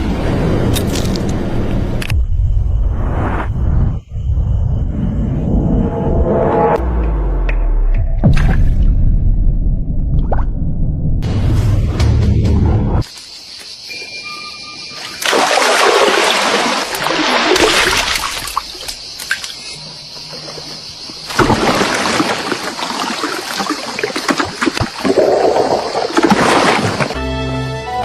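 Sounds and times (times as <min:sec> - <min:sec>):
water splashing and trickling: 0:14.8 - 0:27.2.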